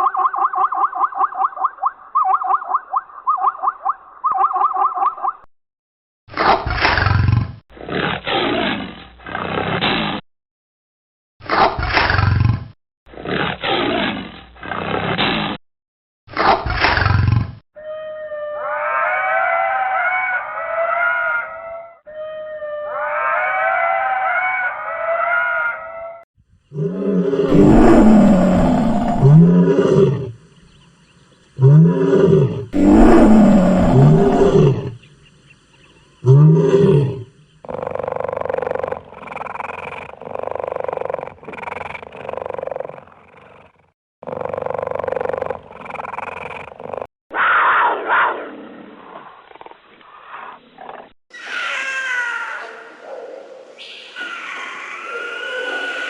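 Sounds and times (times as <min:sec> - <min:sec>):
big cat roaring: 0:26.7 - 0:30.5, 0:31.6 - 0:35.0, 0:36.2 - 0:43.6.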